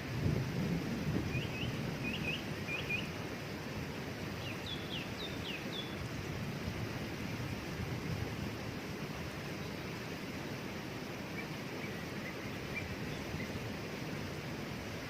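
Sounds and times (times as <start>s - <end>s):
small bird chirping: 1.3s - 3.1s, 4.4s - 6.0s
waterfall rushing: 1.3s - 15.0s.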